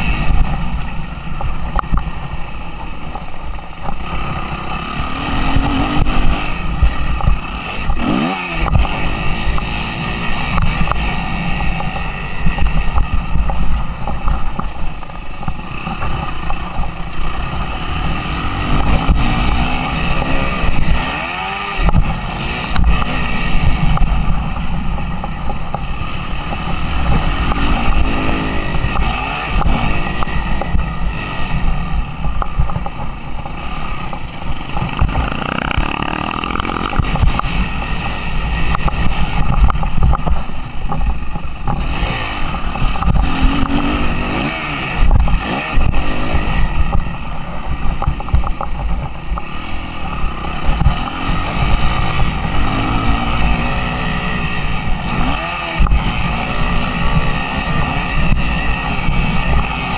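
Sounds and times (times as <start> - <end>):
motocross engine revving: 3.9 - 13.3, 15.6 - 24.6, 25.9 - 32.0, 33.5 - 40.1, 41.7 - 47.8, 49.4 - 59.9.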